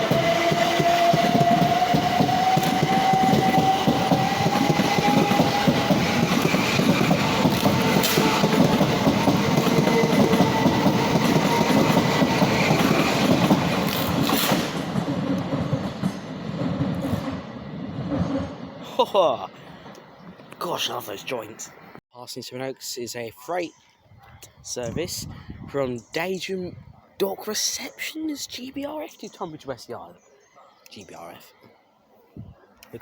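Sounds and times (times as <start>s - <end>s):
freight train wheels clattering: 0.0s - 18.6s.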